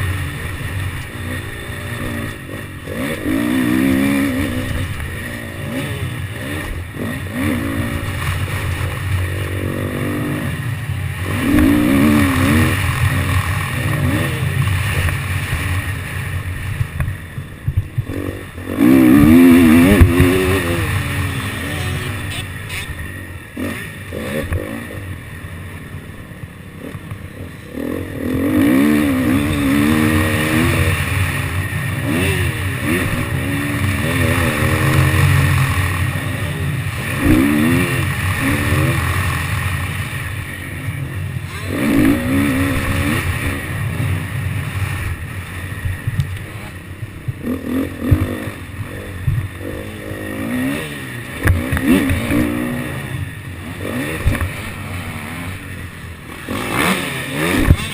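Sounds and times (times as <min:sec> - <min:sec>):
motocross bike engine revving: 0:00.0 - 0:57.9
wind rumble on microphone: 0:15.6 - 0:21.1.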